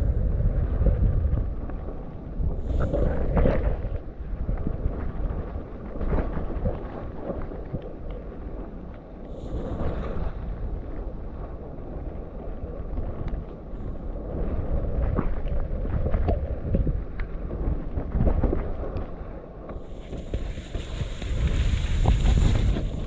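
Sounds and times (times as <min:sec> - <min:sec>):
wind buffeting microphone: 0:00.0 - 0:23.0
bike tyres on wet sandy ground: 0:19.7 - 0:23.0.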